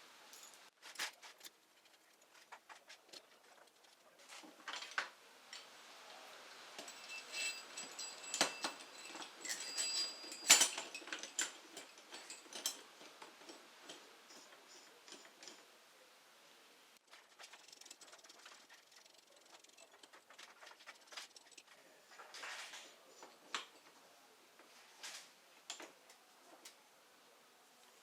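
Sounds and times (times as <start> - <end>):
hand tools clinking on metal: 6.8 - 15.7, 17.2 - 24.0.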